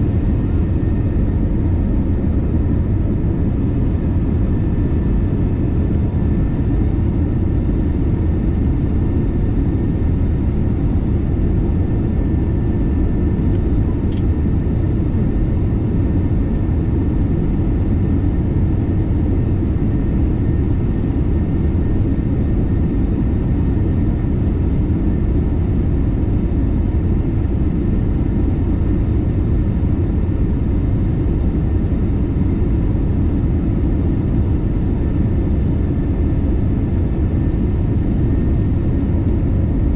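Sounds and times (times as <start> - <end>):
airliner engines and airflow rumble: 0.0 - 39.9
faint steady whine: 0.0 - 39.9
small click: 13.5 - 14.3.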